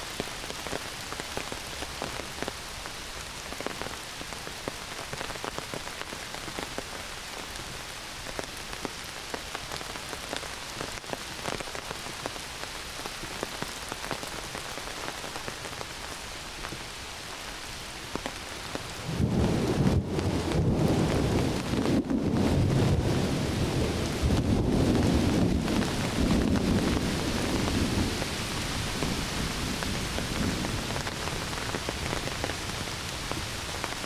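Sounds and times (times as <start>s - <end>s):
heavy rain on foliage: 0.0s - 34.0s
low rumble of thunder: 18.9s - 33.3s.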